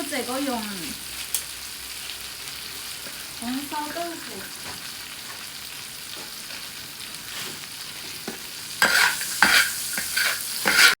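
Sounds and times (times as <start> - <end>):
food sizzling in hot oil: 0.0 - 11.0
spatula scraping a pan: 8.3 - 11.0.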